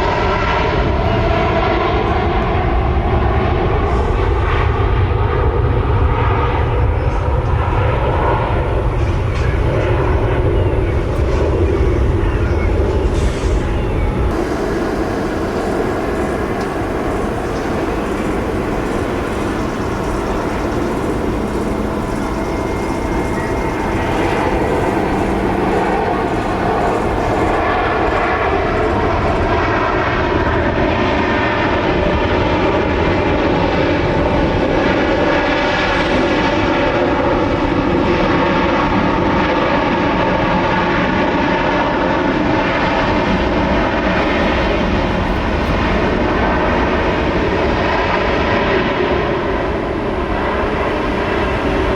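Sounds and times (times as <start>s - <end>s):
jet engines roaring: 0.0s - 51.9s
falling whining tones: 7.1s - 29.8s, 43.7s - 51.9s.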